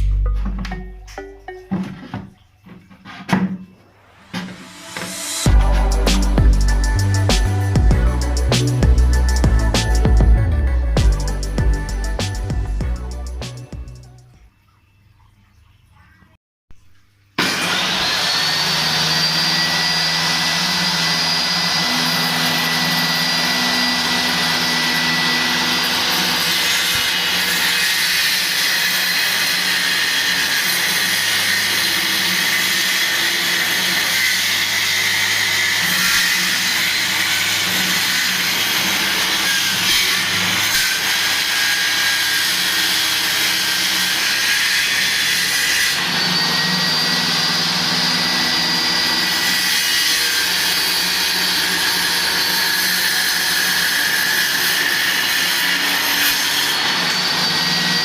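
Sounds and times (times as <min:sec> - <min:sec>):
high whine: 0:03.7 - 0:14.2.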